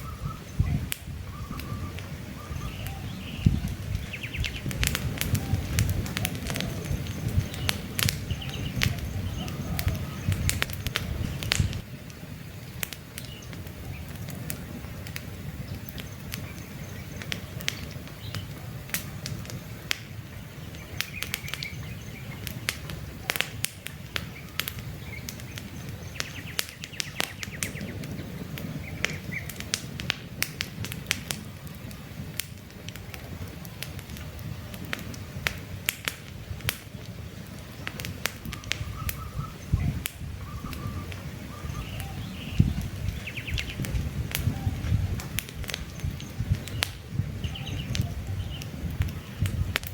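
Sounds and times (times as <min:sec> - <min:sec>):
faint bird chirps: 0:00.0 - 0:04.7, 0:38.5 - 0:43.8
campfire crackling and popping: 0:00.0 - 0:49.9
rush of flames: 0:00.0 - 0:49.9.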